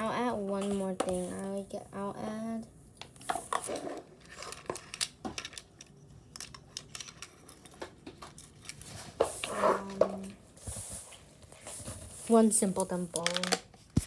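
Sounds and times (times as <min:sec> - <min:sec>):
plastic toys clicking and rustling: 0:03.0 - 0:10.3, 0:12.5 - 0:14.0.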